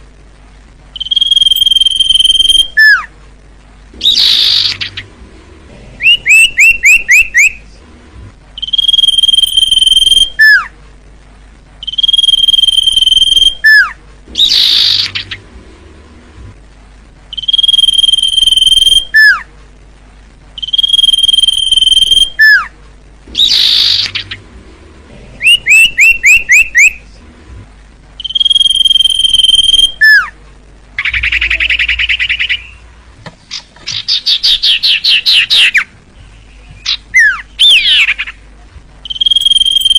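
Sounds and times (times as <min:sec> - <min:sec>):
bird whistling song: 0:00.9 - 0:03.1, 0:04.0 - 0:05.1, 0:06.0 - 0:07.6, 0:08.6 - 0:10.7, 0:11.8 - 0:15.4, 0:17.3 - 0:19.5, 0:20.6 - 0:22.7, 0:23.4 - 0:24.4, 0:25.4 - 0:27.0, 0:28.2 - 0:30.3, 0:31.0 - 0:32.9, 0:33.5 - 0:38.4, 0:39.0 - 0:39.9
bird chirping and chattering: 0:04.0 - 0:05.1, 0:06.0 - 0:07.6, 0:08.6 - 0:10.7, 0:11.8 - 0:15.4, 0:17.3 - 0:19.4, 0:23.4 - 0:24.4, 0:25.4 - 0:27.0, 0:31.0 - 0:32.8, 0:33.5 - 0:38.4, 0:39.0 - 0:39.9.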